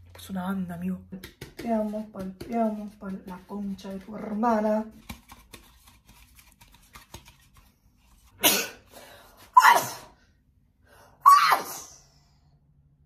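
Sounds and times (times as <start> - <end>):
person sneezing: 8.4 - 8.9, 9.5 - 10.2.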